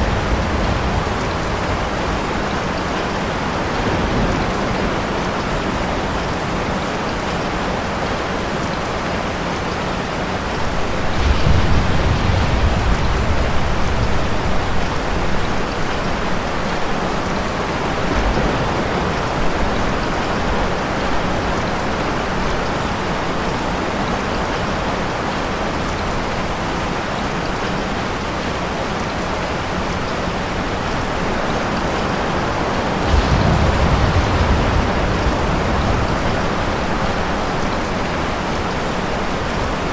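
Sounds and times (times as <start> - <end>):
distant thunder rumbling: 0.0 - 6.2, 10.5 - 21.5, 32.2 - 39.9
heavy rain: 0.0 - 39.9.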